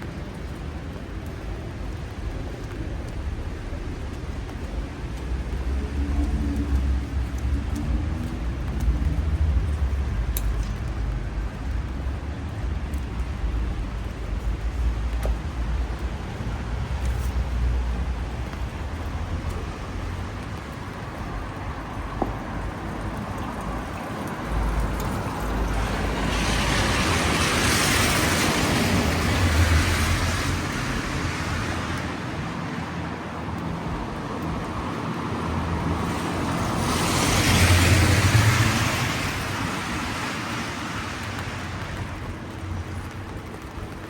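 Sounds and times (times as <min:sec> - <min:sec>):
rain: 0:00.0 - 0:44.0
street noise: 0:00.0 - 0:44.0
car tyres hissing on wet road: 0:24.6 - 0:33.6, 0:34.4 - 0:43.3.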